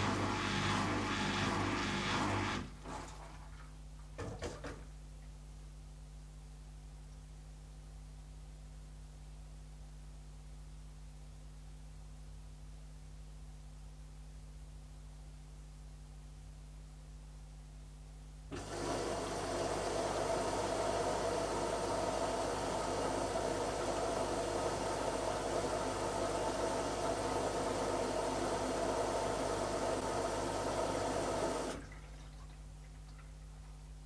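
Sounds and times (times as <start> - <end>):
washing machine whirring: 0.0 - 4.8, 18.5 - 33.8.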